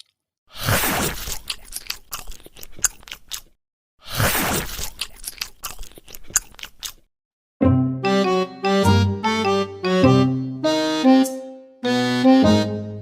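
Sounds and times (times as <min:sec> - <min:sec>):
bird crunching food: 0:01.1 - 0:03.5, 0:04.6 - 0:07.1.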